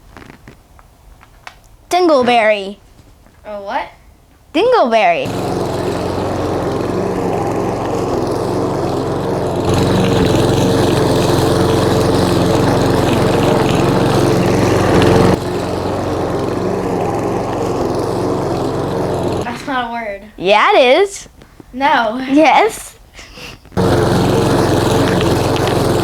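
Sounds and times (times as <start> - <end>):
lawnmower engine running: 5.2 - 19.6, 23.8 - 26.0.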